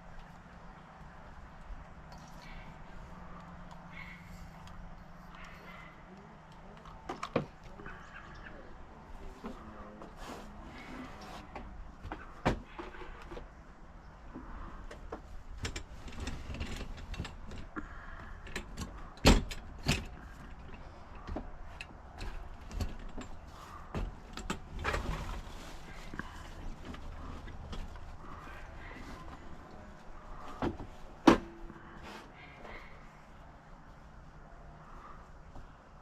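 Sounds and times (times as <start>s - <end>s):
clunks and rattles: 10.8s - 33.0s.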